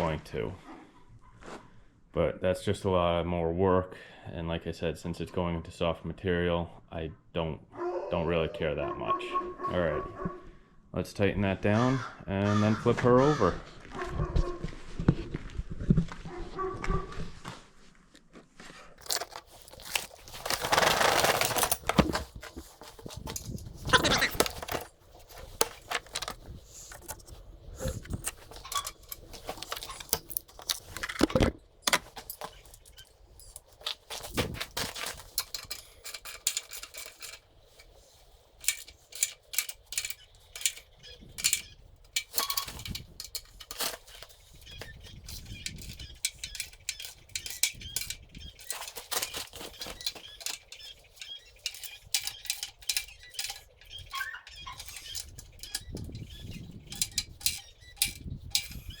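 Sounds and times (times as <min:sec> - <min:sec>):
metallic clinks of hand tools: 0:31.9 - 0:59.0.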